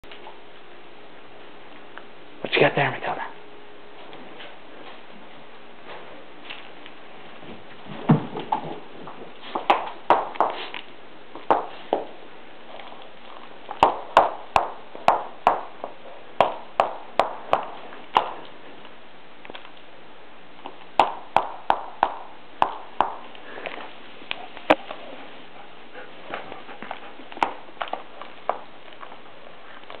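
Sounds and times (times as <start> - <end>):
rubber ball bouncing on hard floor: 13.7 - 18.4, 20.6 - 23.3.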